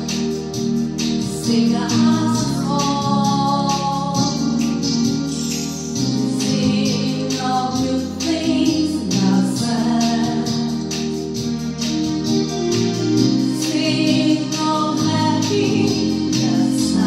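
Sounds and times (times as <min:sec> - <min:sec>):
keyboard backing with beat: 0:00.0 - 0:17.0
woman singing: 0:01.3 - 0:04.9, 0:06.3 - 0:10.8, 0:13.5 - 0:17.0.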